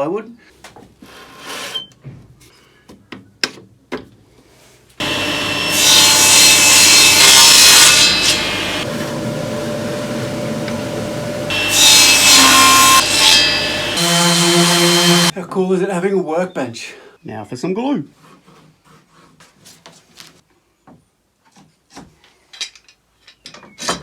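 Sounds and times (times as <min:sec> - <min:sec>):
power saw cutting plywood: 0:05.0 - 0:15.3.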